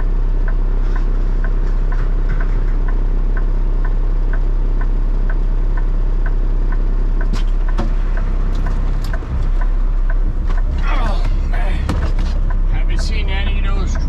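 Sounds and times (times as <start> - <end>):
turn signal ticking: 0.0 - 14.0
vehicle engine running: 0.0 - 14.0
sharp knocks: 8.6 - 12.6.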